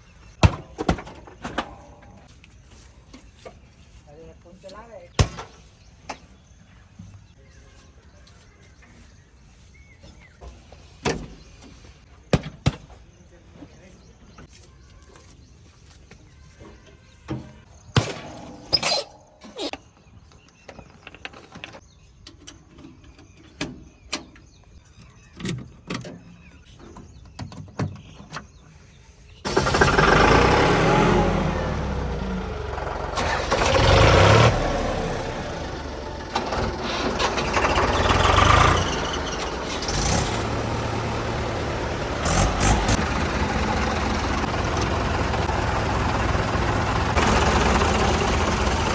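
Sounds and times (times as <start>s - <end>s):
tractor diesel engine running: 29.5s - 48.9s.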